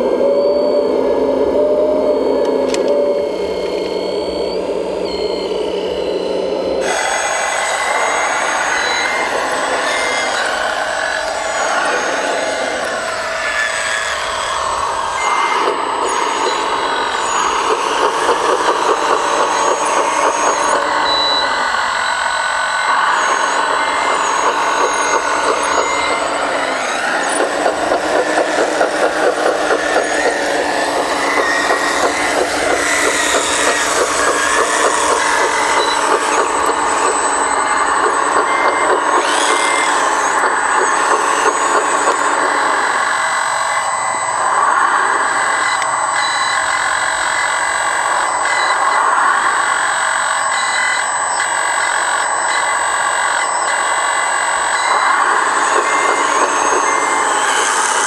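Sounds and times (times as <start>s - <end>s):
model hydraulic machines running: 0.0s - 58.0s
short reversing beeps: 0.4s - 43.2s.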